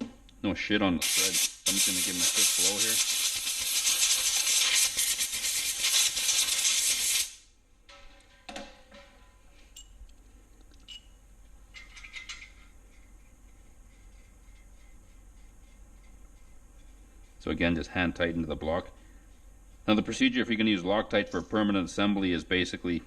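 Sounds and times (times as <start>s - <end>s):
compressed air blow gun hissing: 1.0s - 7.4s
light metallic clinks: 9.0s - 13.6s.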